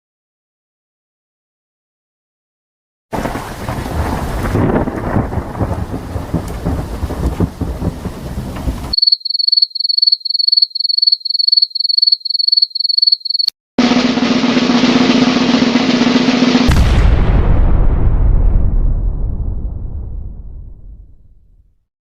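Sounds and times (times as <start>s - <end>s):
rain: 3.1s - 9.0s
rumbling thunder: 3.2s - 9.0s, 16.6s - 21.6s
cricket chirping: 8.9s - 13.5s.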